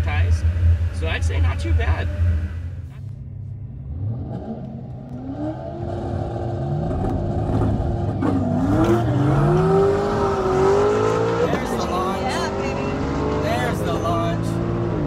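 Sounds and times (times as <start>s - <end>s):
car engine revving and accelerating: 3.8s - 15.0s.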